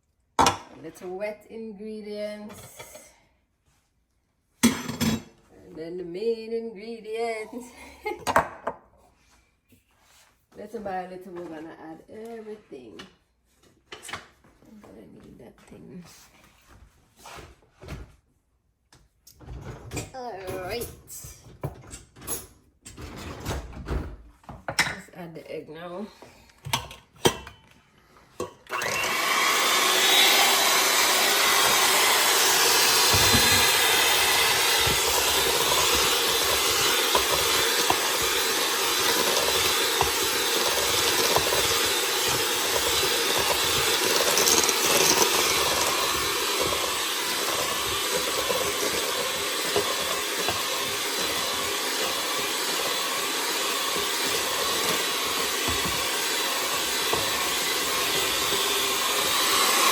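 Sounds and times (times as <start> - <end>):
electric mixer whining: 28.6 - 59.9.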